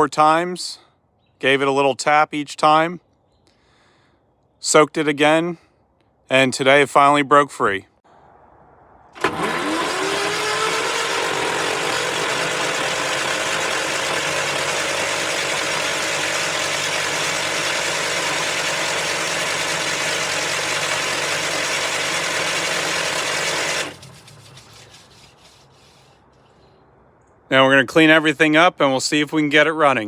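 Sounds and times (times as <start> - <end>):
engine cranked by starter motor: 9.2 - 25.4.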